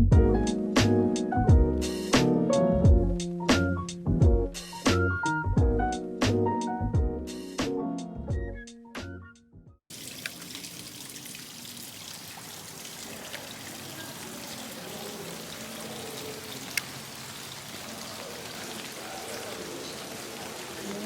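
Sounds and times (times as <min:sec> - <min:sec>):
running water rushing: 0:09.9 - 0:21.0.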